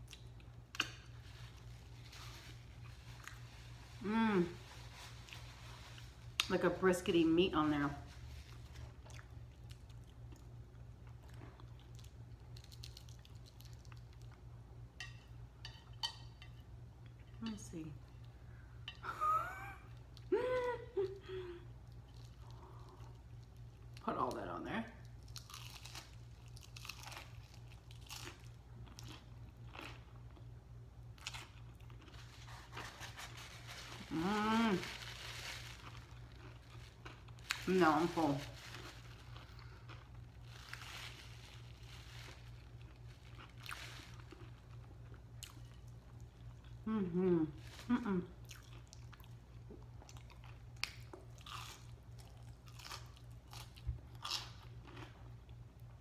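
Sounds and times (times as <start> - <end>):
faint low hum: 0.0 - 56.0
person chewing food: 25.2 - 30.5, 31.2 - 33.2, 35.8 - 37.6, 38.7 - 40.9, 41.8 - 46.8, 48.4 - 56.0.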